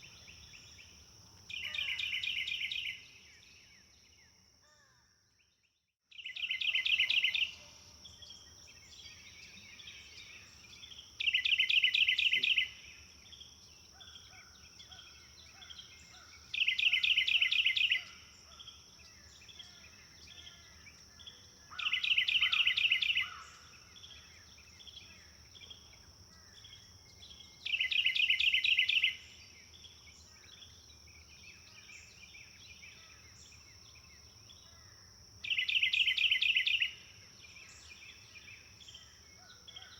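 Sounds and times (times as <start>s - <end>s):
faint birds chirping: 0.0s - 39.9s
songbird trilling: 1.5s - 3.0s, 6.2s - 7.6s, 8.9s - 12.8s, 14.0s - 18.6s, 19.4s - 25.3s, 26.4s - 29.3s, 35.4s - 37.0s.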